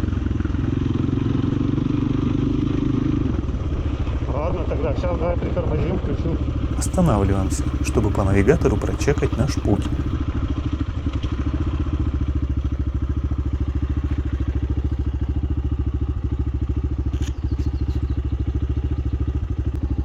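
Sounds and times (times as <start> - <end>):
motorcycle engine idling: 6.7 - 10.1.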